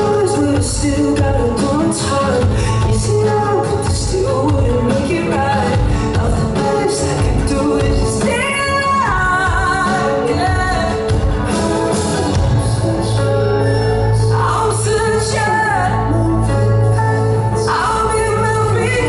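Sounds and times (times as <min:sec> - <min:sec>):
live pop music with singing: 0:00.0 - 0:19.0.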